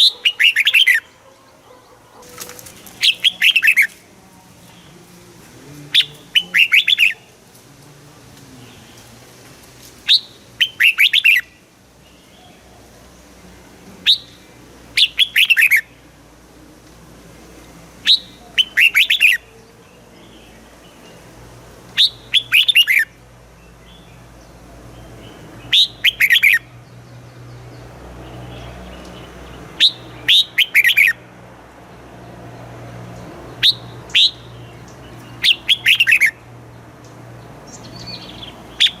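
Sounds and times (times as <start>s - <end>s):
bird singing whistled phrases: 6.0s - 7.2s, 10.1s - 11.5s, 14.1s - 14.4s, 18.0s - 19.4s, 22.0s - 23.1s, 25.7s - 26.6s, 29.8s - 31.2s, 33.6s - 34.5s, 35.4s - 36.4s.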